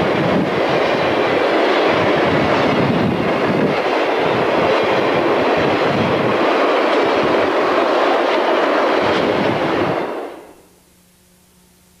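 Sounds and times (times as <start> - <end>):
train wheels clattering: 0.0 - 10.5
train wheels rumbling on rail: 0.0 - 10.7
faint steady hum: 10.5 - 12.0.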